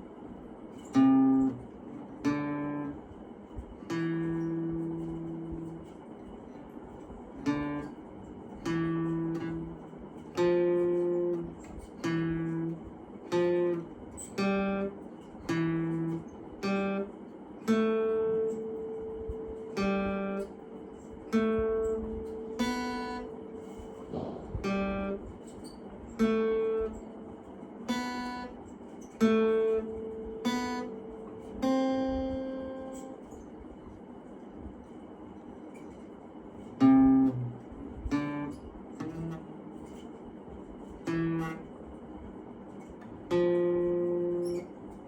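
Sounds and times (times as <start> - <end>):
acoustic guitar strumming chords: 0.7 - 33.4, 36.6 - 40.1, 40.8 - 41.8, 42.7 - 45.0.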